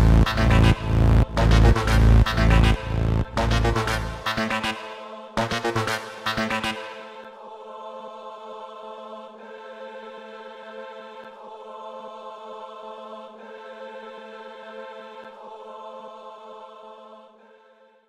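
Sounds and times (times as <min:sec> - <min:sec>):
steady low drone: 0:00.0 - 0:04.6
electronic music beat: 0:00.0 - 0:06.9
sustained chord: 0:00.0 - 0:07.0.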